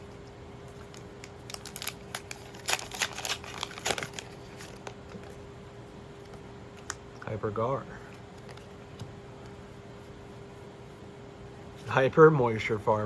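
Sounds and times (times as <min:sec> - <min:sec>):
foil wrapper crinkling: 0:00.8 - 0:05.2.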